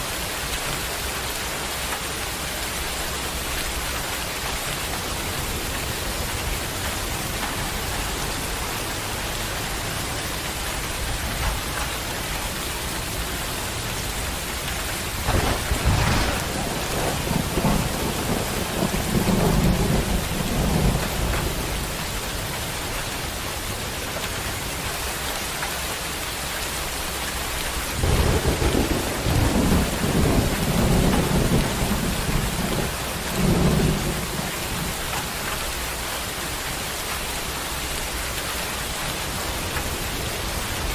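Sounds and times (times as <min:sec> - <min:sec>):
heavy rain: 0:00.0 - 0:40.9
thunder rumbling: 0:14.2 - 0:22.9, 0:27.9 - 0:35.2.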